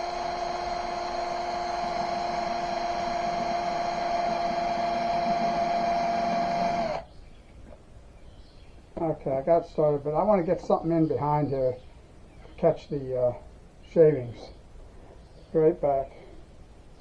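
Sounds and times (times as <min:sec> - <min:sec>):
electric drill whining: 0:00.0 - 0:07.1.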